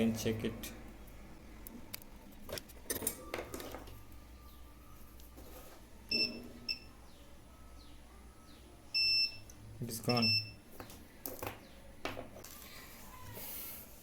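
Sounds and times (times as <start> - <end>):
multimeter short beeps: 9.0 - 9.5, 10.1 - 10.6.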